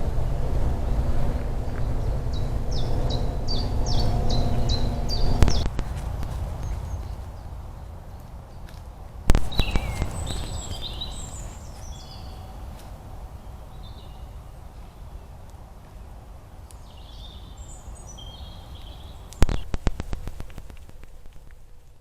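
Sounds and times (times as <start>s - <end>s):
low outdoor rumble: 0.0s - 22.0s
songbird twittering: 1.8s - 7.9s, 9.3s - 12.8s, 16.8s - 20.8s
sharp clicks: 5.4s - 7.2s, 9.3s - 11.2s, 19.3s - 21.6s.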